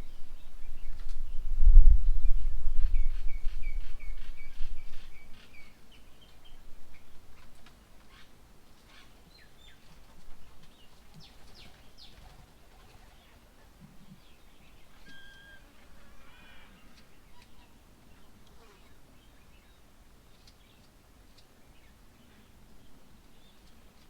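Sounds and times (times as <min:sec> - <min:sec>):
birds chirping: 0:00.0 - 0:24.0
bird whistle: 0:15.0 - 0:15.7.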